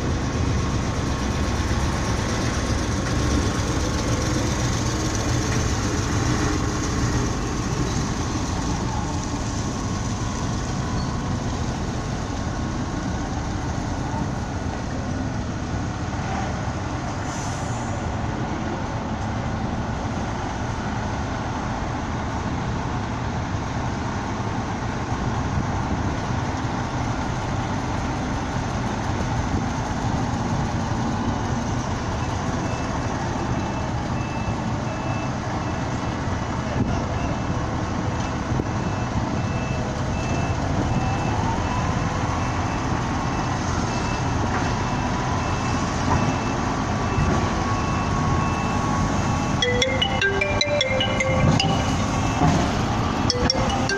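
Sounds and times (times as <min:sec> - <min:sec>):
diesel machinery running: 0:00.0 - 0:35.1, 0:40.0 - 0:53.9
reversing alarm beeping: 0:47.2 - 0:53.9.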